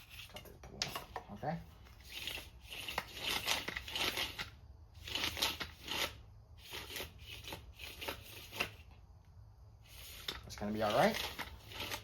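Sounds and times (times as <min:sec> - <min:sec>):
chainsaw recoil starter rope rasping: 0:01.8 - 0:08.8, 0:10.0 - 0:12.0.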